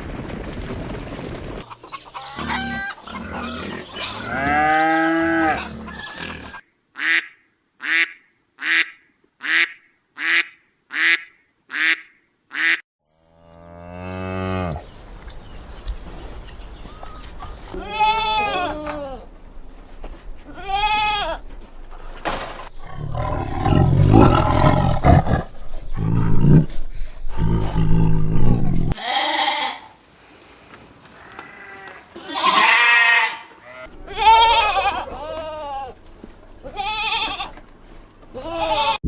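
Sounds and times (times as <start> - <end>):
goats bleating: 17.7 - 19.3, 20.4 - 21.4, 28.8 - 30.0, 31.2 - 36.0, 36.6 - 37.6, 38.3 - 39.0.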